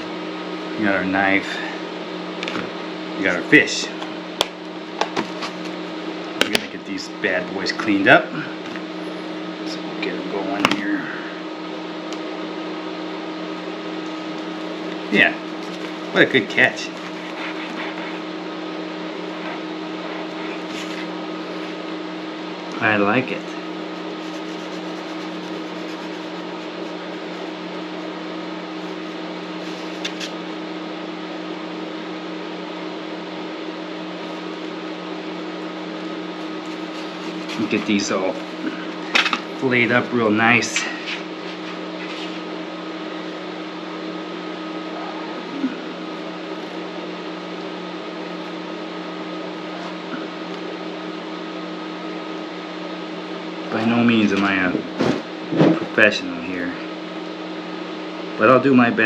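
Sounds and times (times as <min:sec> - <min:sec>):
machine hum with hiss: 0:00.0 - 0:59.0.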